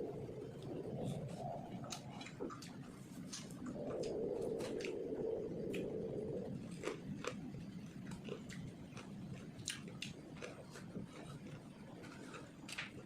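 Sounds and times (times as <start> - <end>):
steady low sound: 0.0 - 9.0
person chewing food: 0.2 - 13.0.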